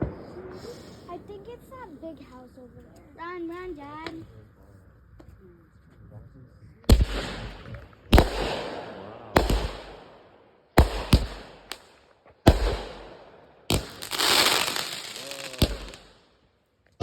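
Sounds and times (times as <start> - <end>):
firework bangs: 0.0 - 1.8, 6.9 - 16.2
firework crackling hiss: 13.7 - 16.2.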